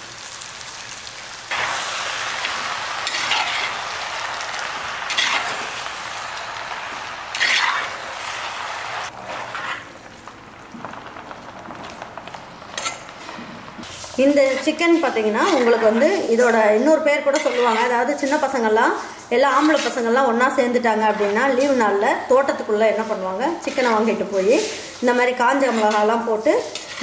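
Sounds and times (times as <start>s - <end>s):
food sizzling in hot oil: 0.0s - 27.0s
ladle scraping pot: 7.3s - 8.0s, 12.7s - 22.0s, 23.5s - 27.0s.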